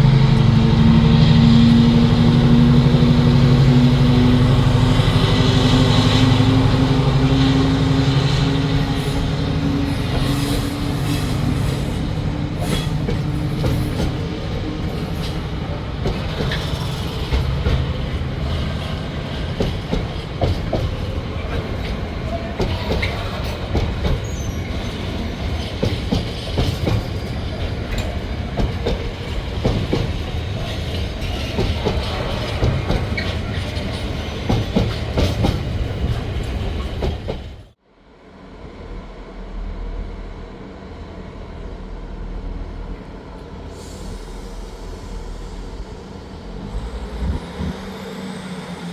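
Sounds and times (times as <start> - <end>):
train rumble: 0.0 - 48.9
train wheels clicking over joints: 1.6 - 37.7
wheel squeal: 24.2 - 26.8.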